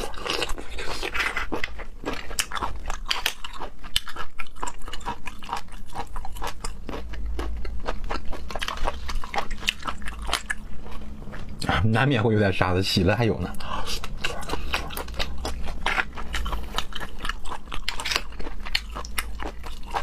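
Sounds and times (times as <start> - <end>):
chewing shellfish: 0.0 - 11.8, 13.2 - 20.0
person speaking: 11.6 - 14.0.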